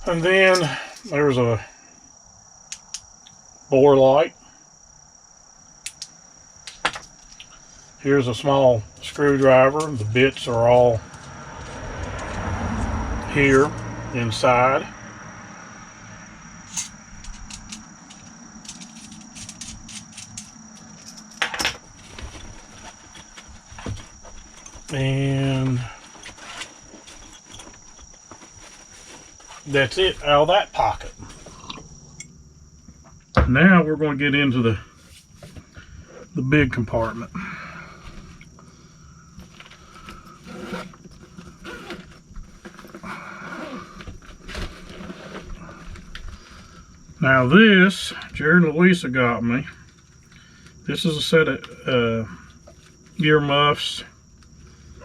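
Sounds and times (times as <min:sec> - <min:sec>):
bag rustling: 0:16.6 - 0:30.3.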